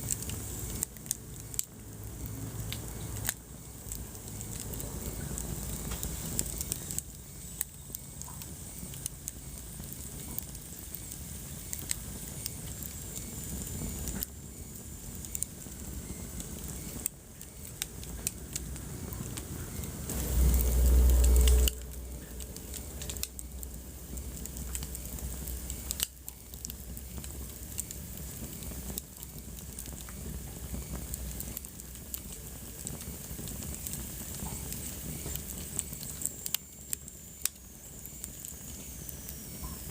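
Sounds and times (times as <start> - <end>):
wood fire crackling and popping: 0.0 - 39.9
loud low rumble: 20.1 - 25.7.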